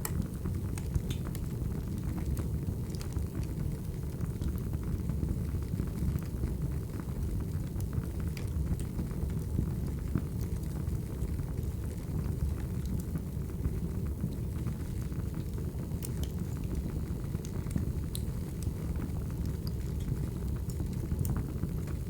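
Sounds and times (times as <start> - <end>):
logs crackling and popping: 0.0 - 1.5, 7.4 - 10.8, 15.4 - 22.0
wood fire rumbling: 0.0 - 22.0.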